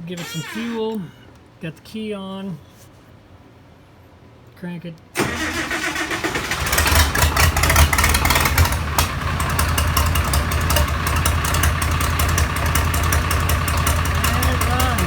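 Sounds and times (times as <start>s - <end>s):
diesel engine starting and running: 5.2s - 15.0s.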